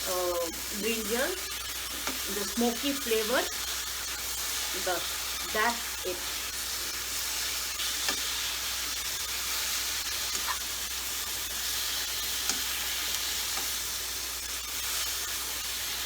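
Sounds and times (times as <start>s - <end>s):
food sizzling in oil: 0.0s - 16.0s
spatula tapping pan: 12.4s - 13.8s.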